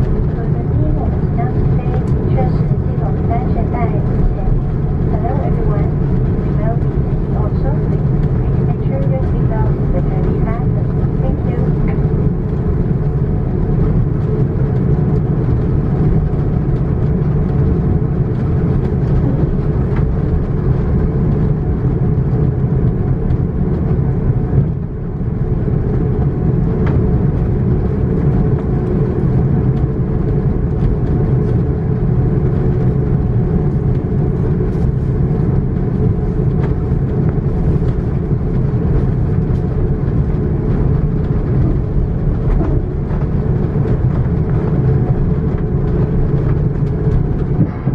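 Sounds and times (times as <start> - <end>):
jet engines rumbling in cabin: 0.0 - 47.9
airflow rush: 32.6 - 47.9.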